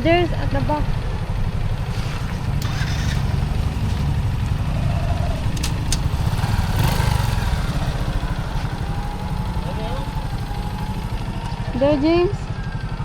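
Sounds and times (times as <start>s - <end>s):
engine idling: 0.0s - 13.0s
sharp clicks: 5.5s - 6.2s.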